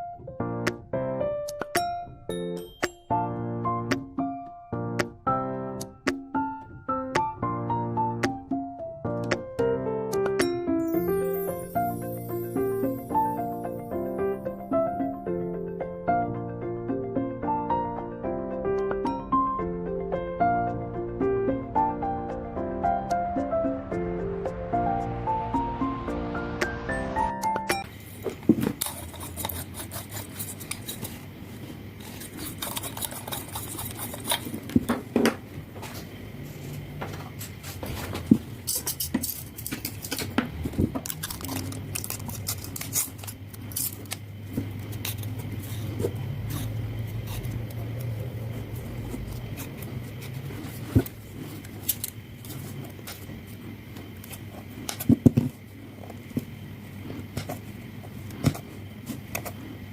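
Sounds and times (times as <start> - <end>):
small parts clicking and scraping: 38.6 - 40.4, 41.0 - 44.2.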